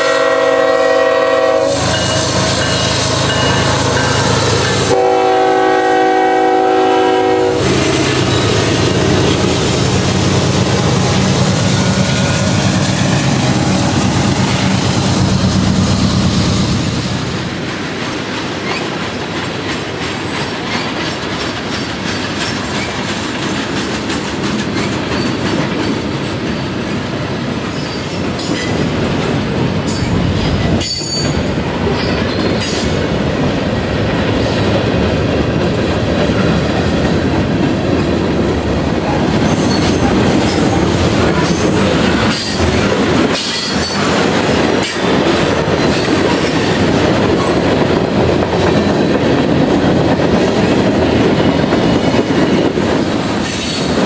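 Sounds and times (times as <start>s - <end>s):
steel wheels rumbling on rail: 0.0s - 54.0s
high wheel squeals: 39.4s - 42.6s.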